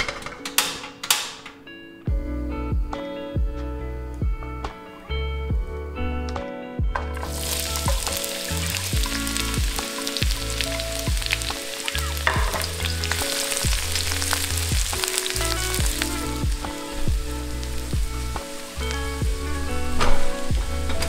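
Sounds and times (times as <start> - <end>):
background music with bass: 1.6 - 21.0
food sizzling in oil: 7.2 - 20.9.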